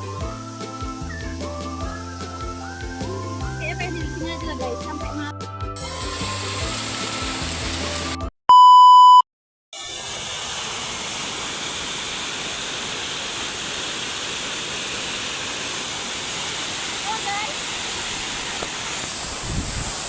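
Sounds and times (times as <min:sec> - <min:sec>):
waterfall rushing: 0:00.0 - 0:08.2, 0:09.8 - 0:20.0
background music: 0:00.0 - 0:08.3
steady single-pitch beep: 0:08.5 - 0:09.2.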